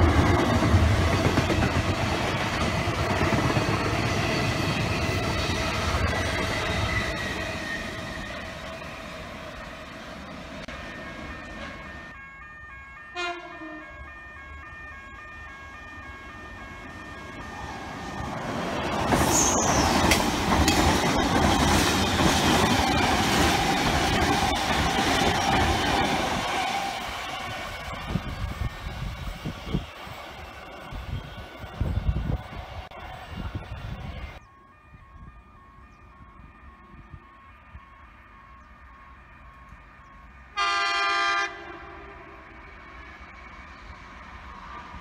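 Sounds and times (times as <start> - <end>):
electric train passing through: 0.0 - 45.0
freight train rolling past: 0.0 - 45.0
level-crossing bells: 6.6 - 19.1, 34.0 - 40.6.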